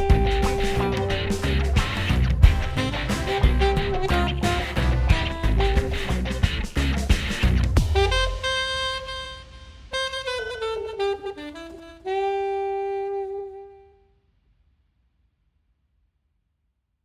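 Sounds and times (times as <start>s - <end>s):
solo melody line: 0.0s - 6.3s, 7.9s - 13.9s.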